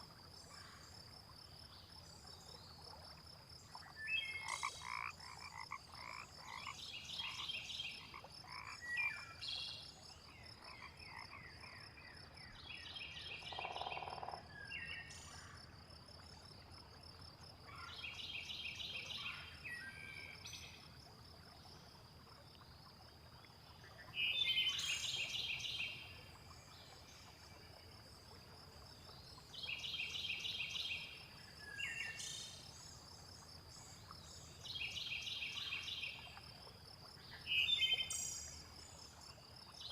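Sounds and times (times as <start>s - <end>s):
low frog croak: 2.3s - 9.6s, 10.2s - 12.4s, 13.3s - 39.8s
frog pulsed rattling call: 4.1s - 9.4s, 13.4s - 14.5s.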